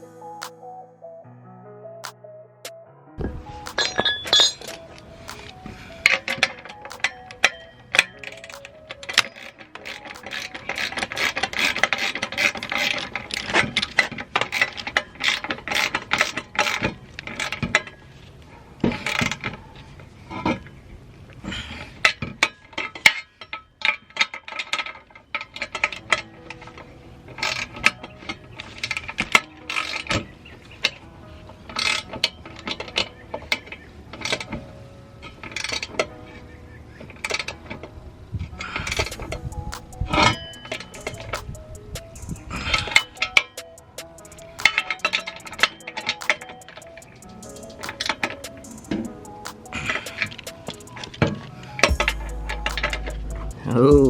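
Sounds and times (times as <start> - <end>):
metal exhaust parts clanking: 3.2 - 18.0, 38.5 - 54.0
hand tools clicking: 3.7 - 17.9, 38.8 - 54.0
ratchet wrench clicking: 39.0 - 51.1, 51.9 - 54.0.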